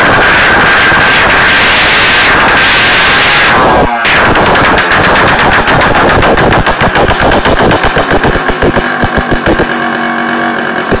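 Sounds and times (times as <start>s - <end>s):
exhaust pops: 0.0s - 11.0s
moped engine revving: 0.0s - 11.0s.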